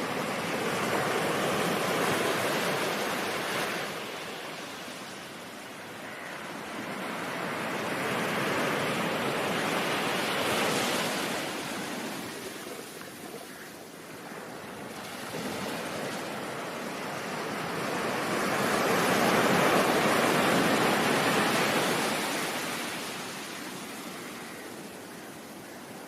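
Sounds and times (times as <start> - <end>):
ocean surf wave washing: 0.0 - 25.2.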